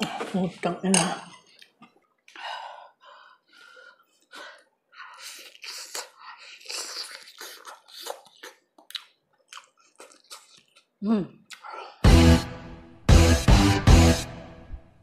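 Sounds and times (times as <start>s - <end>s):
person chewing food: 1.3s - 2.4s, 3.9s - 12.1s.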